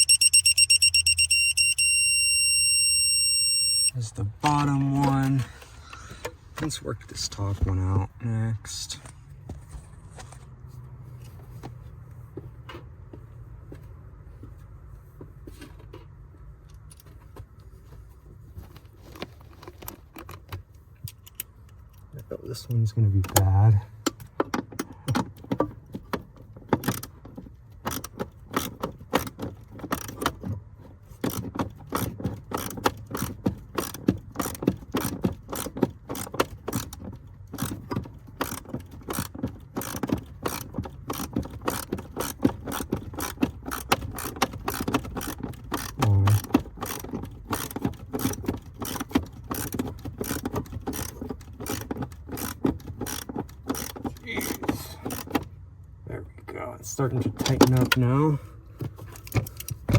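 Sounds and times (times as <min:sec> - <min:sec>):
socket ratchet clicking: 0:00.0 - 0:03.9, 0:31.3 - 0:55.5.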